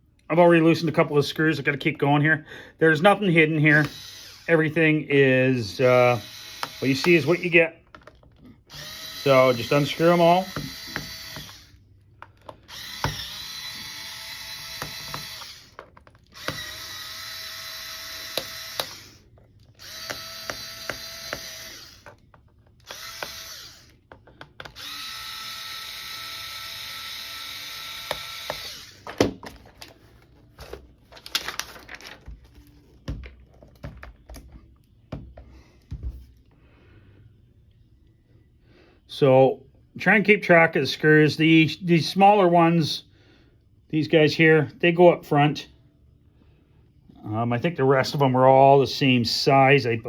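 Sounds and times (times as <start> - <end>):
power screwdriver whining: 3.7 - 4.7, 6.1 - 29.2
screws and plastic case clicking: 18.2 - 24.9.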